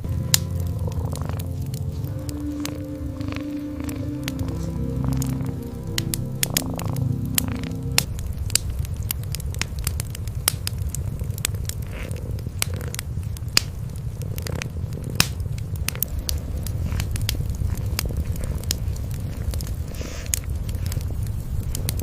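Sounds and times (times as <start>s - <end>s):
cats purring: 0.0s - 22.0s
wood fire crackling and popping: 0.0s - 22.0s.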